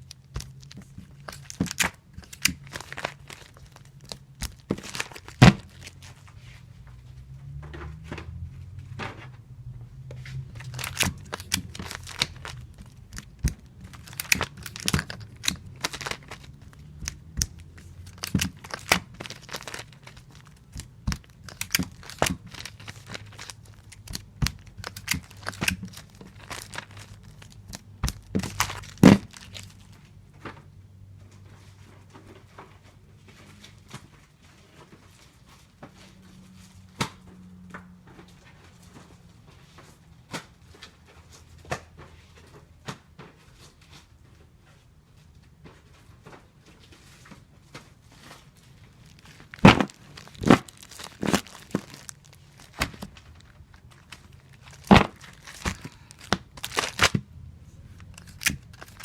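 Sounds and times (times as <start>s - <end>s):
tape torn off dispenser: 0.0s - 6.2s, 10.3s - 29.7s, 48.9s - 57.3s, 58.0s - 59.0s
comic books crinkling: 0.0s - 7.6s, 10.0s - 30.7s, 45.6s - 59.0s
low steady hum: 0.0s - 41.4s.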